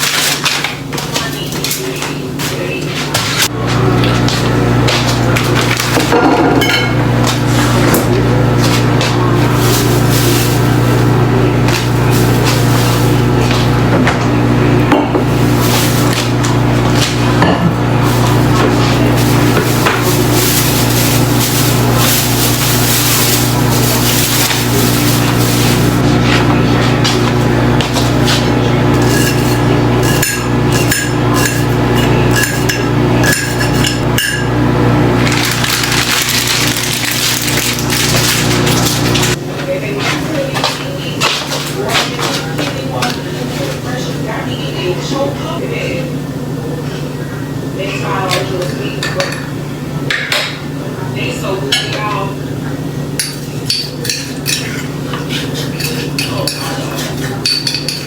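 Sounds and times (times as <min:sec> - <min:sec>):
low appliance motor hum: 0:00.0 - 0:58.0
dishes and utensils clinking: 0:04.1 - 0:14.2, 0:27.0 - 0:34.5, 0:48.3 - 0:49.5, 0:53.2 - 0:58.0.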